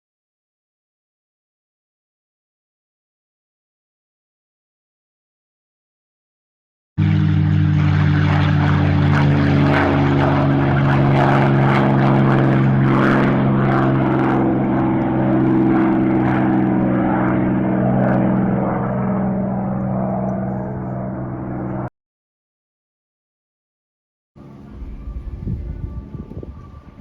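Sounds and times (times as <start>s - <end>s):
aircraft engines running: 7.0s - 21.9s, 24.4s - 27.0s.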